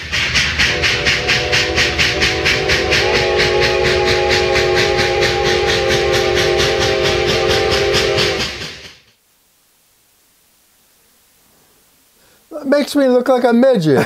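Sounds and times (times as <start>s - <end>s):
chord steam whistle: 0.0s - 9.1s
model steam locomotive chuffing: 0.0s - 9.2s.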